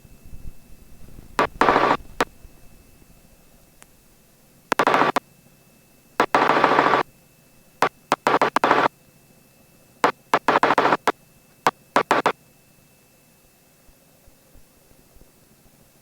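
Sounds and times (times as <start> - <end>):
aircraft radio noisy bursts: 1.4 - 2.3, 4.7 - 5.2, 6.2 - 7.0, 7.8 - 8.9, 10.0 - 12.3.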